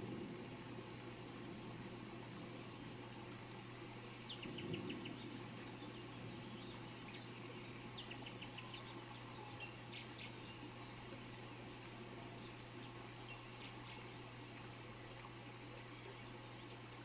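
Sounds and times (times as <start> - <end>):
steady high hiss: 0.0 - 17.0
small songbird singing: 4.2 - 11.3, 12.4 - 14.1.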